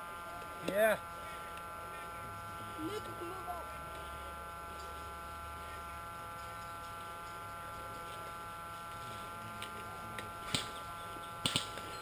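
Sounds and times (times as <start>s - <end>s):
faint electrical whine: 0.0s - 12.0s.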